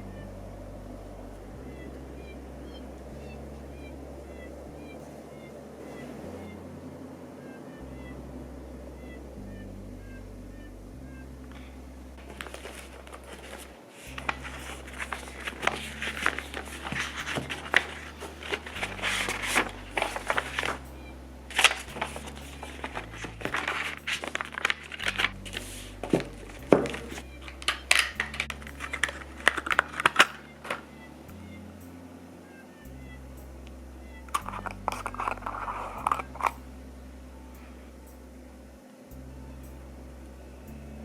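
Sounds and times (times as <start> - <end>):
soft background music: 0.0 - 41.0
crinkling and rustling: 12.2 - 30.9, 34.3 - 36.6.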